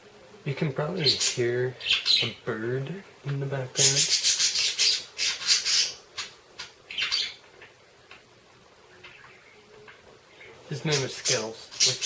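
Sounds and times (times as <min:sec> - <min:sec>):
budgerigar squawking: 0:03.8 - 0:07.4.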